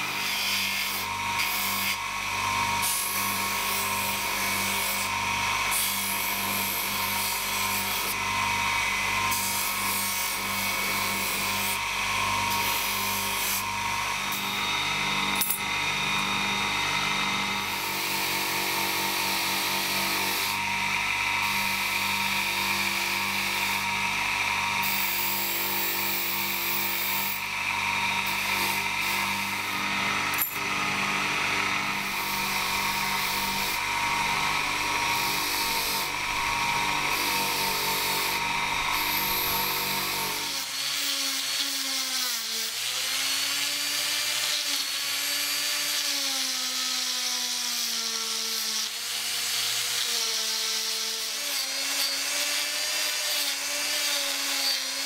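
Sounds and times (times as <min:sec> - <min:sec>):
power tool motor whine: 0:00.0 - 0:55.0
grinding on a knife: 0:09.2 - 0:40.7.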